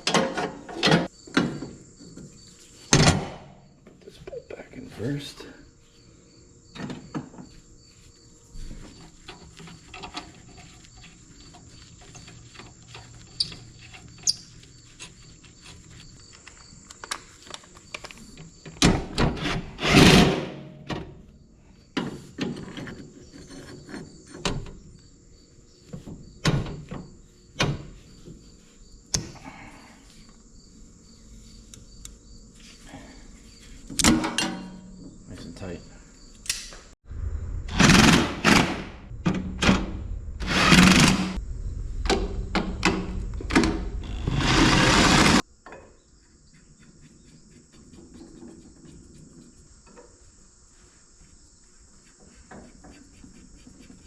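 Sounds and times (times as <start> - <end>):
loud rushing noise: 37.0 - 45.4
knocks and clunks: 37.7 - 45.9.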